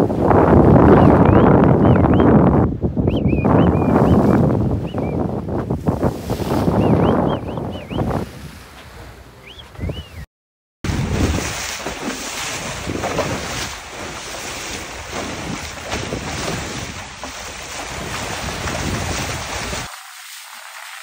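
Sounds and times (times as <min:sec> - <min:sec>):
wind buffeting microphone: 0:00.0 - 0:10.2, 0:10.9 - 0:19.9
water rushing past hull: 0:03.3 - 0:09.6, 0:10.9 - 0:21.0.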